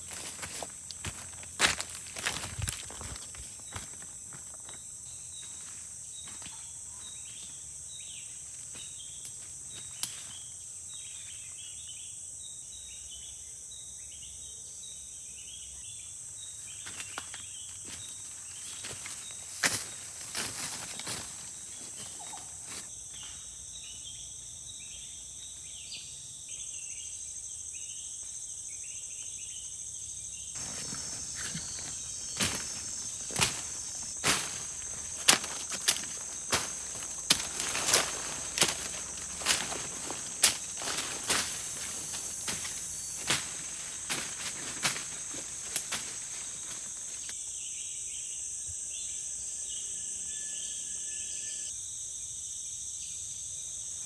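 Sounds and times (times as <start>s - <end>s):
insects droning: 0.0s - 54.0s
rustling: 30.6s - 47.3s.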